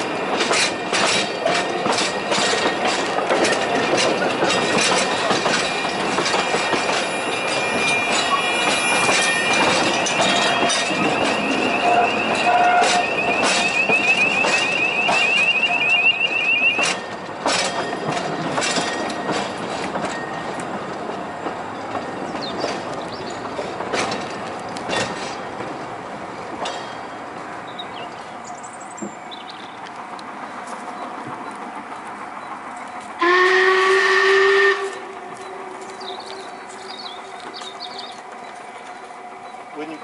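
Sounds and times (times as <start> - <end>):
railway carriages running: 0.0 - 40.0
wheels clicking over rail joints: 0.0 - 40.0
high wheel squeal: 3.5 - 17.2.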